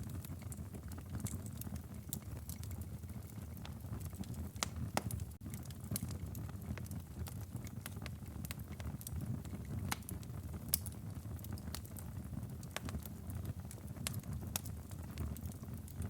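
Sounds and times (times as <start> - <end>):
burning firewood popping: 0.0 - 16.0
fire crackling: 0.0 - 16.0.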